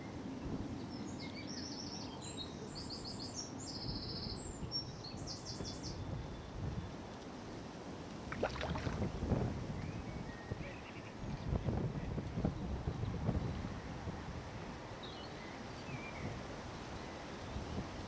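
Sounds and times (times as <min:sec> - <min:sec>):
wind rumble on microphone: 0:03.8 - 0:07.2, 0:08.2 - 0:18.0.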